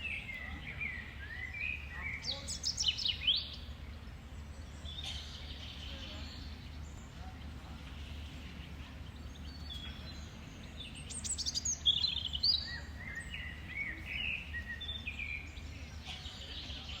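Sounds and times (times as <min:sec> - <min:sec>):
low background rumble: 0:00.0 - 0:17.0
songbirds singing: 0:00.0 - 0:17.0.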